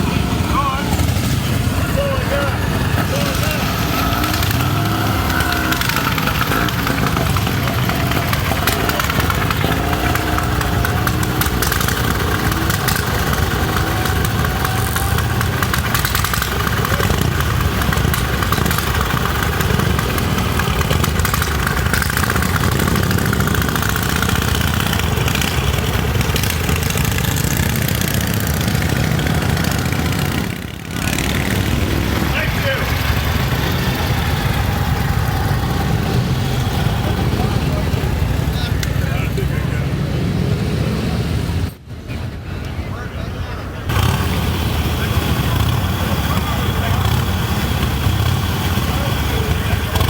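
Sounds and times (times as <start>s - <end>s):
motorcycle engine idling: 0.0s - 39.6s, 43.8s - 50.0s.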